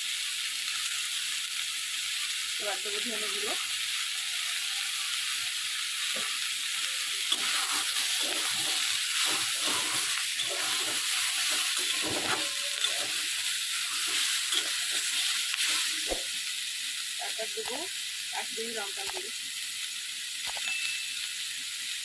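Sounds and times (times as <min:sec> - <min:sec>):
vegetables frying with sizzle: 0:00.0 - 0:22.0
steel spatula scraping pan: 0:06.9 - 0:16.3.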